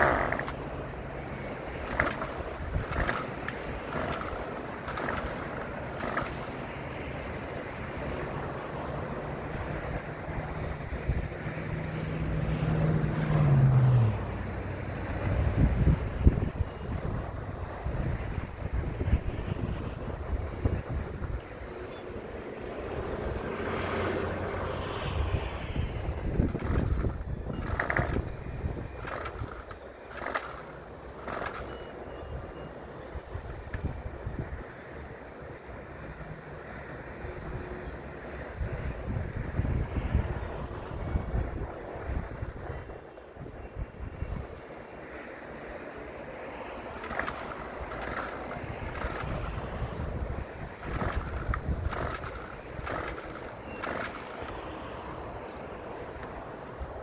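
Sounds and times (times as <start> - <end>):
chainsaw starter cord rasping: 0.0 - 0.8, 1.6 - 6.8, 26.5 - 32.2, 47.0 - 49.9, 50.7 - 54.7.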